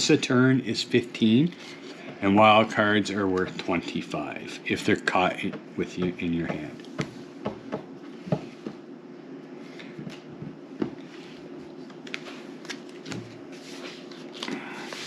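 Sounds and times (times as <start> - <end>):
steady low hum: 0.0 - 15.0
playing cards tapping and sliding: 5.4 - 8.8, 9.7 - 15.0.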